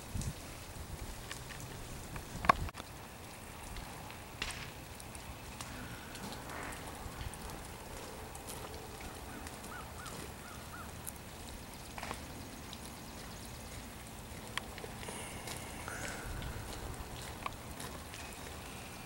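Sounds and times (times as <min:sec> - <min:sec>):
faint hiss: 0:09.2 - 0:19.0.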